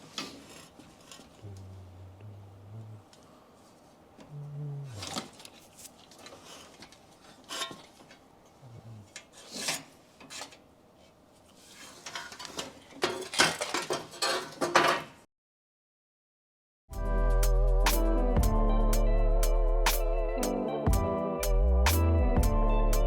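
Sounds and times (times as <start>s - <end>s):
metal tools clinking and rattling: 12.0s - 15.1s.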